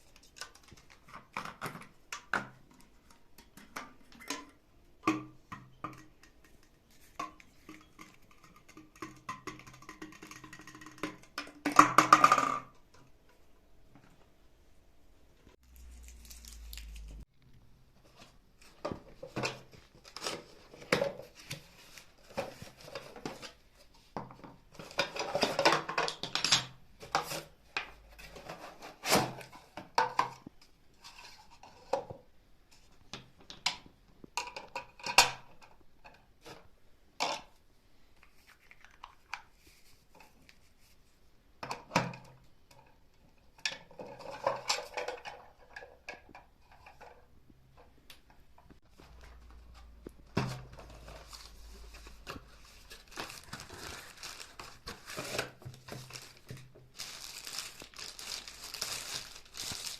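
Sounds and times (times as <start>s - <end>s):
packaging rustling and tearing: 15.6s - 17.2s, 50.7s - 59.9s.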